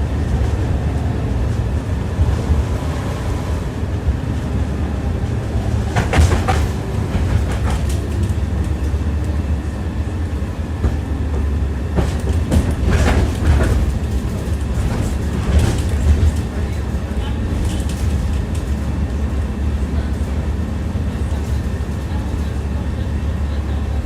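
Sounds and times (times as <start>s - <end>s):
tram rumbling on rails: 0.0s - 24.0s
wheels clacking over rail joints: 5.2s - 9.4s, 10.8s - 22.8s.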